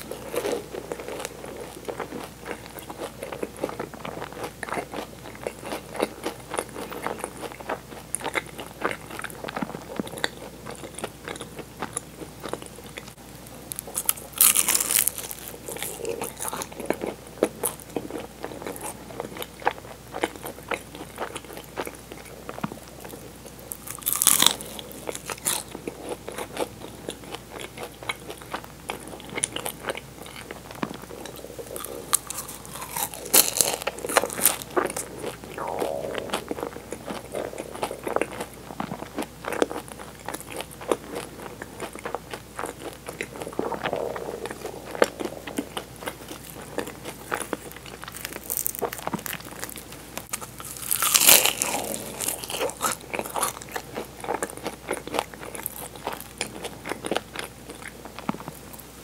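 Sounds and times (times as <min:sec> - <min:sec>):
chewing flaky pastry: 0:00.0 - 0:59.0
loud crunching bites: 0:23.9 - 0:25.6, 0:31.1 - 0:39.8, 0:50.6 - 0:53.6.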